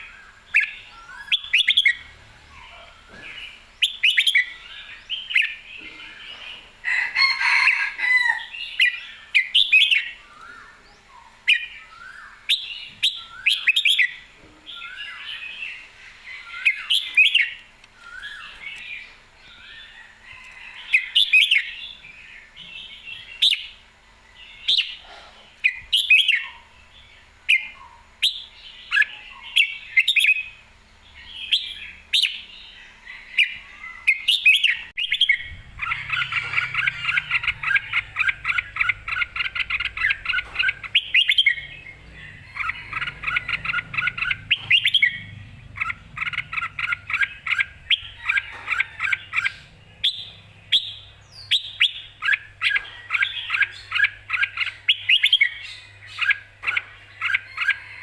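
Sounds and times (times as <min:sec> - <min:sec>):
bulbul singing: 0:00.0 - 0:22.0, 0:25.7 - 0:58.0.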